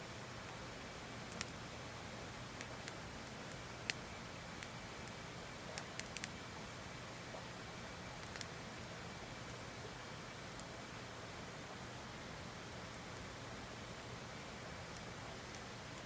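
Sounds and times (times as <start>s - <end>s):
wood fire crackling: 5.8s - 6.3s.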